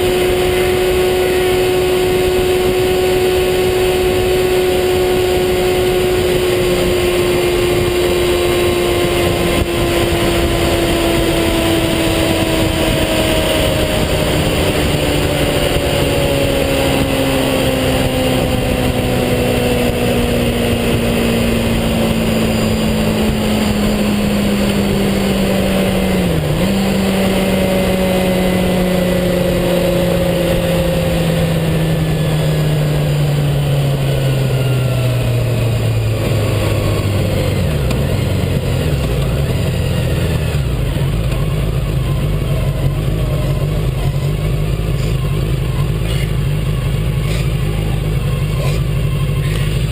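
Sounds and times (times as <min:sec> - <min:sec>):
wind noise rushing: 0:00.0 - 0:32.9
vehicle engine running down: 0:00.0 - 0:49.9.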